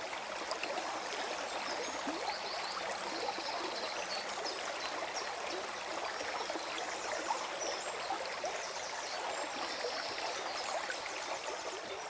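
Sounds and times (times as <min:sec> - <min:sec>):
stream flowing and gurgling: 0:00.0 - 0:12.0.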